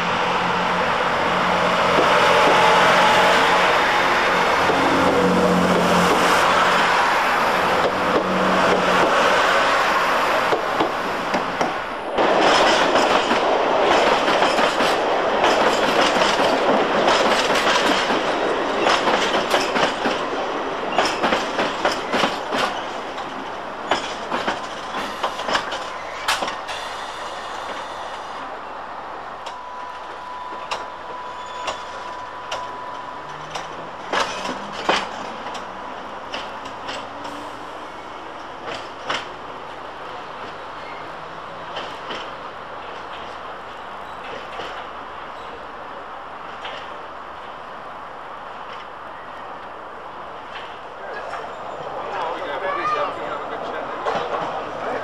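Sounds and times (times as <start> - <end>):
diesel train rumbling: 0.0 - 55.0
train wheels clattering: 10.5 - 28.0, 31.6 - 35.7.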